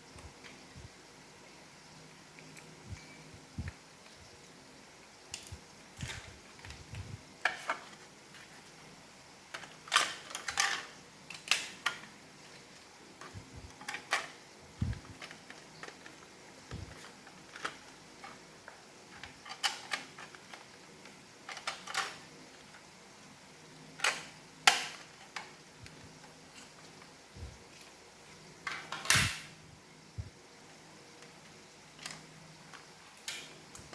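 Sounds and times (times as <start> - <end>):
plastic parts clicking and knocking: 5.3 - 8.0, 9.5 - 22.9, 24.0 - 27.1.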